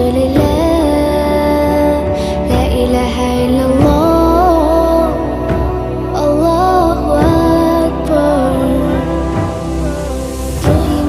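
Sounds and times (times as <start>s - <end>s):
devotional chant long sung note: 0.0s - 11.0s
steady low drone: 0.0s - 11.0s.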